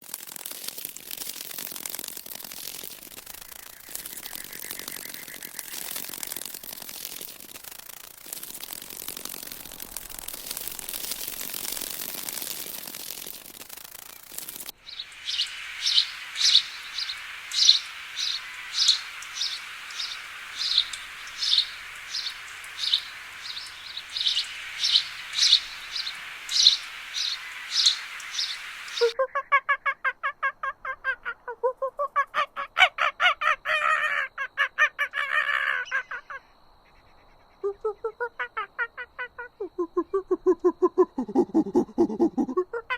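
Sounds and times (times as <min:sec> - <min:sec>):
steady hiss: 0:00.0 - 0:29.2
short high bird calls: 0:14.8 - 0:29.5
low stuttering animal call: 0:37.6 - 0:42.9.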